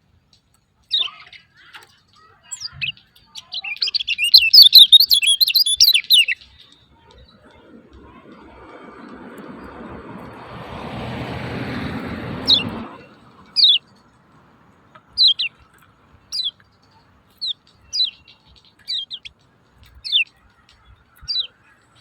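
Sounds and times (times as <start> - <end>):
bird chirping calls: 0.8 - 22.0
rushing noise: 7.2 - 15.3.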